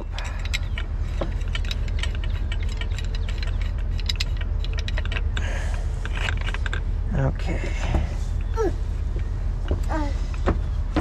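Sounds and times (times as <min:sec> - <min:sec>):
metallic clicks of pipe wrench: 0:00.0 - 0:06.9
steady low rumble: 0:00.0 - 0:11.0.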